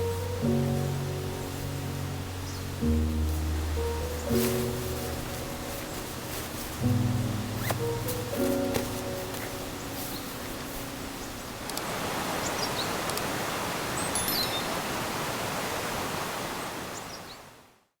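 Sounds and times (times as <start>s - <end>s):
background music: 0.0s - 11.6s
steady outdoor rushing noise: 0.0s - 14.0s.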